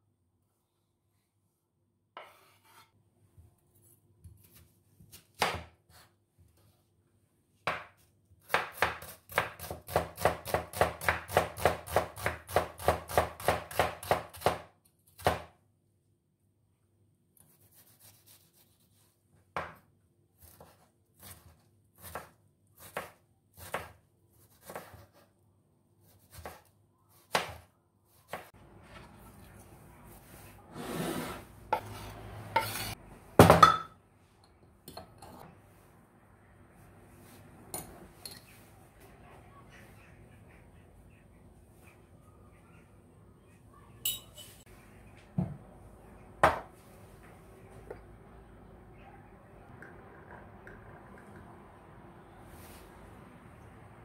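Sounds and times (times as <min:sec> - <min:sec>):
knife chopping on cutting board: 0:04.4 - 0:06.0, 0:07.6 - 0:15.5.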